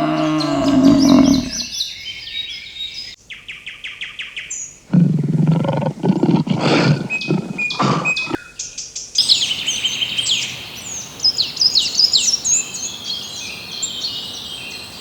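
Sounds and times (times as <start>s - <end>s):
farm animal low call: 0.0s - 1.8s, 4.9s - 8.4s
rough pulsing animal call: 0.0s - 1.8s, 4.9s - 8.4s
birds chirping: 0.0s - 3.2s, 4.6s - 15.0s.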